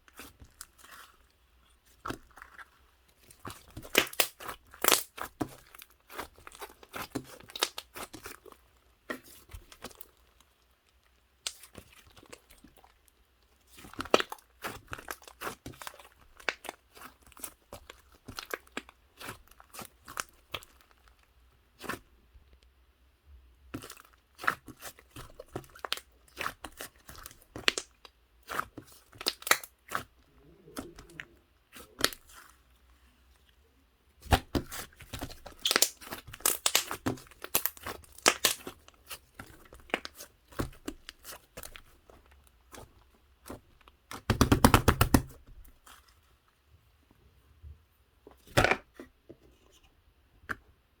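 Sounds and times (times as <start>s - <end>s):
slime crackling and popping: 1.9s - 8.5s, 11.4s - 12.9s, 13.7s - 21.0s, 23.7s - 30.1s, 30.7s - 32.6s, 34.2s - 46.0s.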